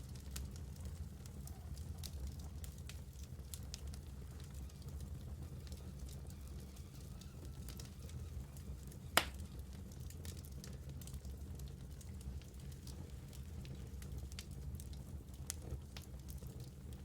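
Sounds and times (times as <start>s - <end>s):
fire crackles: 0.0s - 17.0s
fire rumbling: 0.0s - 17.0s
loud sharp fire pop: 9.2s - 9.4s.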